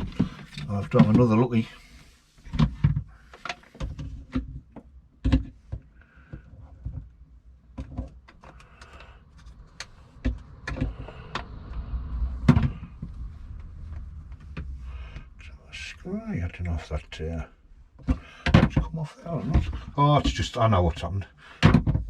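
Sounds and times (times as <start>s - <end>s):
plastic parts clicking and knocking: 2.5s - 11.7s, 18.0s - 20.4s, 21.6s - 22.0s.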